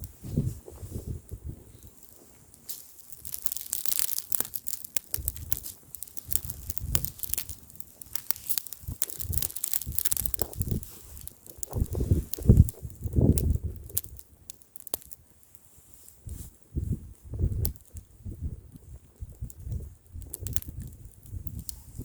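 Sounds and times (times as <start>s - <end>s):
wind rumbling on microphone: 0.0s - 2.0s, 4.5s - 7.6s, 8.8s - 14.5s, 16.2s - 22.0s
bonfire crackling and popping: 0.0s - 22.0s.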